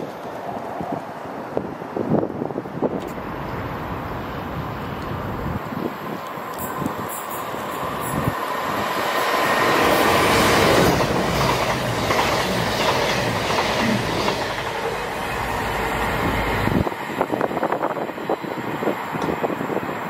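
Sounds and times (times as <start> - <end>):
diesel train passing at speed: 0.0 - 20.0
train wheels clicking on rails: 4.9 - 19.8.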